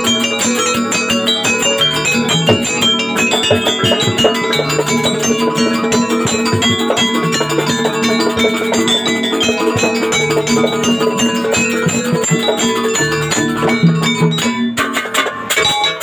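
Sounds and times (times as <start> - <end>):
tuned metal percussion melody: 0.0 - 16.0
drums with quick steady beat: 1.6 - 16.0.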